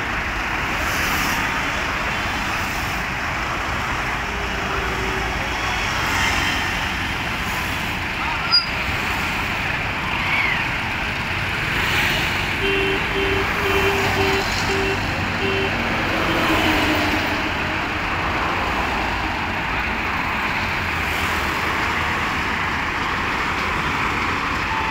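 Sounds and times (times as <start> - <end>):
road traffic noise: 0.0 - 24.9
short beeps: 8.5 - 8.8.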